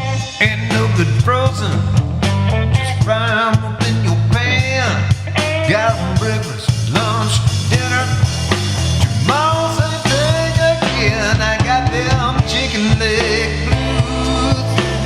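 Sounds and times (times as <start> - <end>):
drums: 0.0 - 15.0
steady bass line: 0.0 - 15.0.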